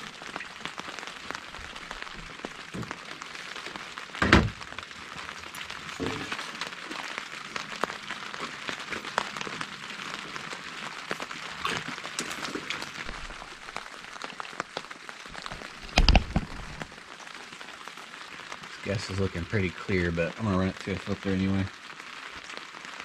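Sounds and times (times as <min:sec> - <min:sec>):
rain pattering on a canopy: 0:00.0 - 0:23.0
loud thump: 0:04.2 - 0:04.6.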